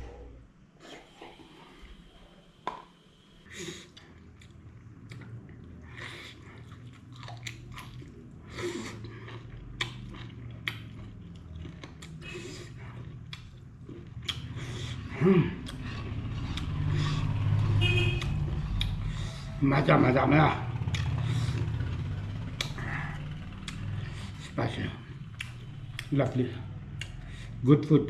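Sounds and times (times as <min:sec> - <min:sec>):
person chewing food: 0:03.7 - 0:17.6, 0:18.2 - 0:19.4, 0:20.8 - 0:27.6.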